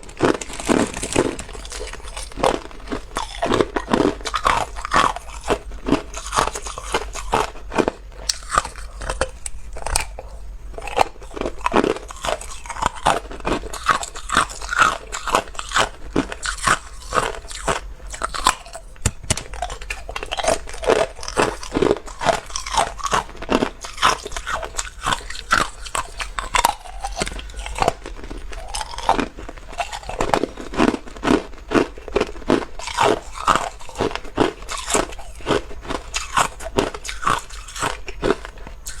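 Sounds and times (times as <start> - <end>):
chewing ice cubes: 0.0 - 39.0.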